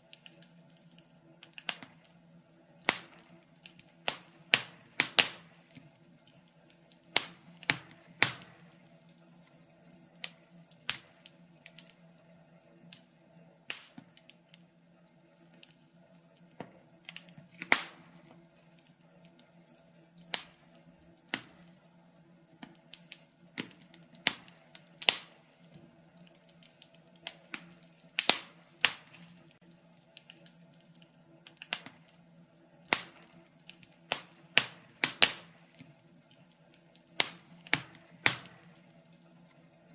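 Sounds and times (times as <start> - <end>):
fire crackling in a fireplace: 0.0 - 39.9.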